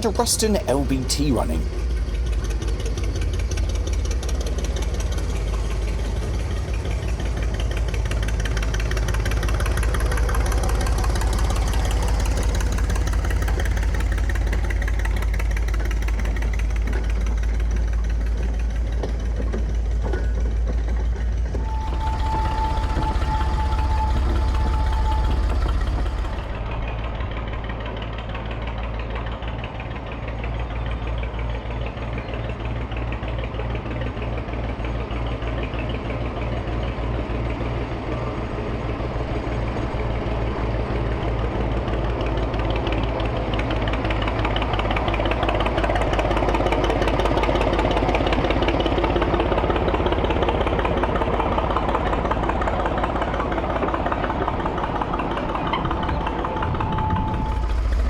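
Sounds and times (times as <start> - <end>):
diesel locomotive engine beat: 20.7 - 29.6, 36.1 - 58.0.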